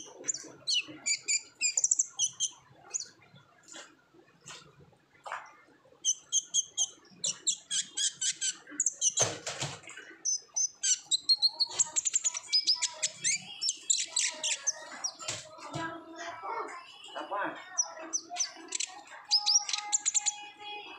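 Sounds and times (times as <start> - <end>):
sunbird singing chirps and trills: 0.0 - 3.2, 6.0 - 9.2, 10.1 - 15.3, 17.1 - 20.6.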